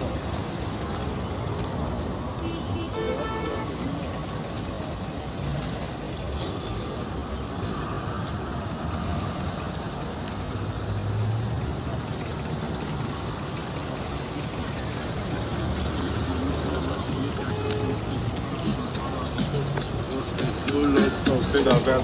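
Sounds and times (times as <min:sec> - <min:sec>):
road traffic passing: 0:00.0 - 0:22.0.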